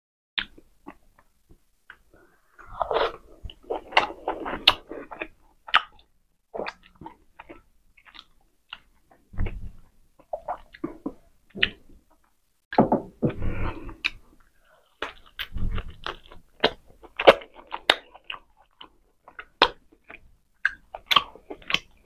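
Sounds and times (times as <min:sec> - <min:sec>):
person chewing food: 0:00.4 - 0:12.3, 0:13.2 - 0:22.0.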